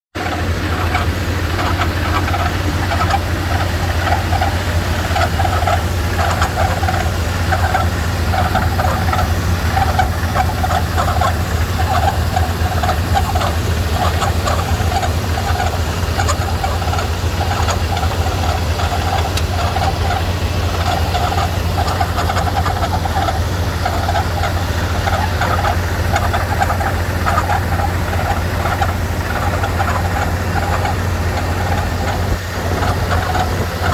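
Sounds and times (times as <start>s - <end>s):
pickup engine idling: 0.1s - 33.9s.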